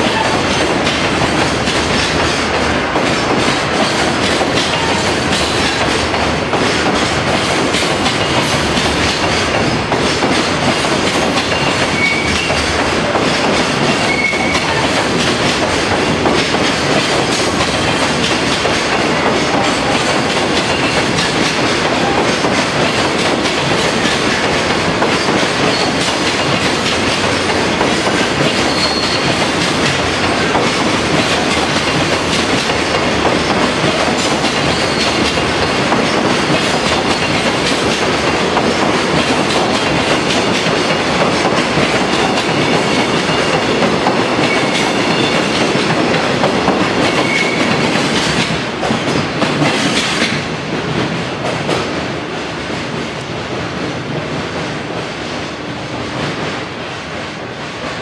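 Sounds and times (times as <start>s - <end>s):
train wheels clicking on rails: 0.0s - 58.0s
wheel squeals: 11.9s - 12.5s, 28.7s - 29.3s.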